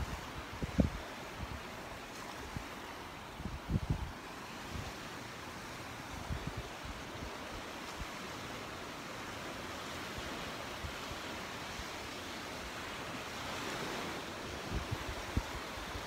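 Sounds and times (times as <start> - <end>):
wind knocking on microphone: 0.0 - 1.0
surf washing onto beach: 0.0 - 16.0.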